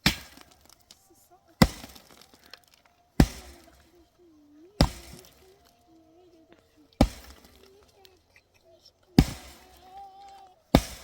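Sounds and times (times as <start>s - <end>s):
tool striking brick: 0.0s - 0.8s, 1.6s - 2.3s, 3.2s - 3.8s, 4.8s - 5.4s, 7.0s - 7.7s, 9.2s - 11.0s.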